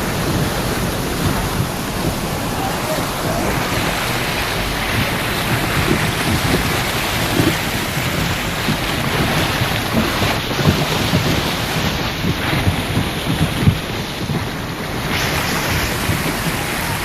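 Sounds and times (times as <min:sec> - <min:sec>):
storm rain pouring: 0:00.0 - 0:17.0
wind gusting on microphone: 0:00.0 - 0:17.0.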